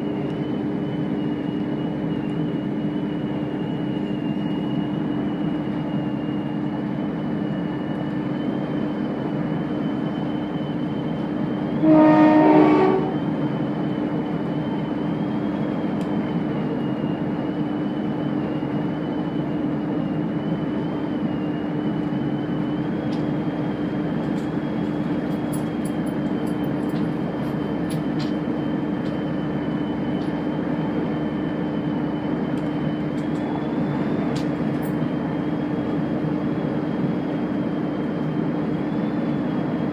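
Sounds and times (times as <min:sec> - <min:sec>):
diesel train droning: 0:00.0 - 0:39.9
train horn: 0:11.8 - 0:13.3.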